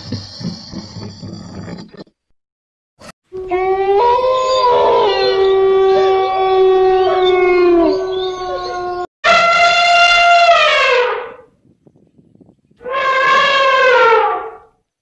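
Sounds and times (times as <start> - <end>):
dogs howling: 3.4 - 9.1.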